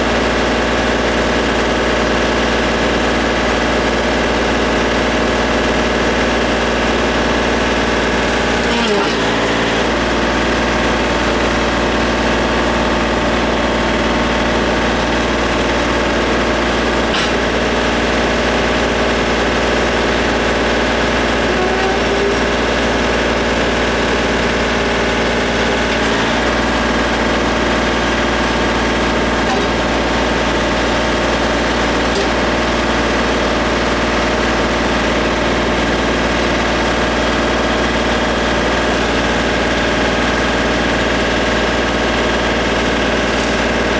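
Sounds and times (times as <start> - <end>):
tractor diesel engine idling: 0.0 - 43.9.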